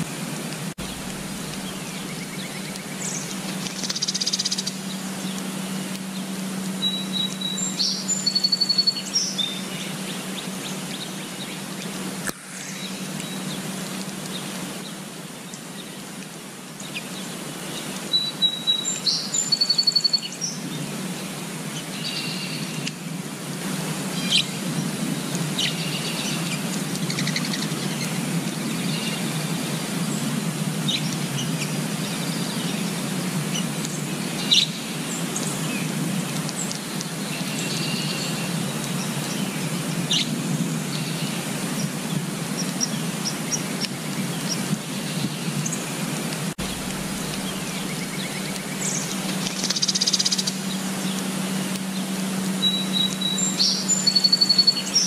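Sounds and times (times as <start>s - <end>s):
steady background haze: 0.0s - 6.8s, 46.6s - 52.6s
wild birds chirping: 0.8s - 11.8s, 24.1s - 46.0s, 46.6s - 55.0s.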